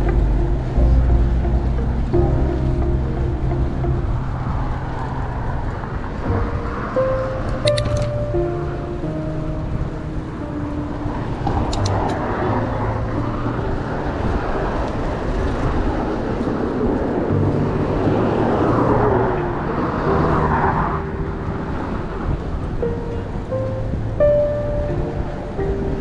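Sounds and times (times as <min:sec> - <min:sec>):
road traffic noise: 0:00.0 - 0:26.0
soft music with held notes: 0:00.0 - 0:26.0
vehicle passing by: 0:00.0 - 0:26.0.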